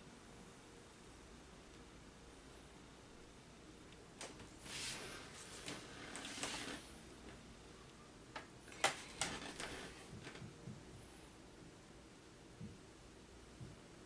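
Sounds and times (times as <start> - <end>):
brush rustling on paper: 4.6 - 6.9.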